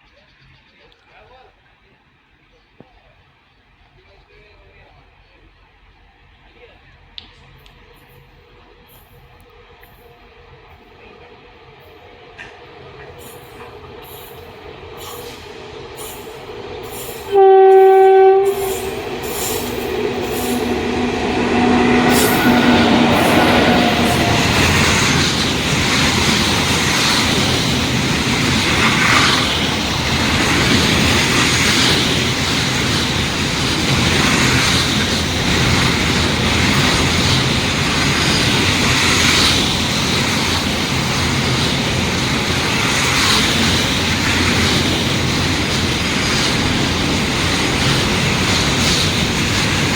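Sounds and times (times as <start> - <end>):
train wheels rumbling on rails: 2.8 - 49.9
locomotive horn blast: 17.2 - 25.2.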